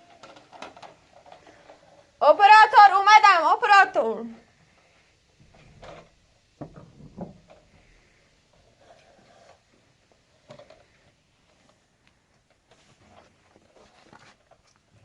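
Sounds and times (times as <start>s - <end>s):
faint knocks and bumps: 5.4s - 8.1s.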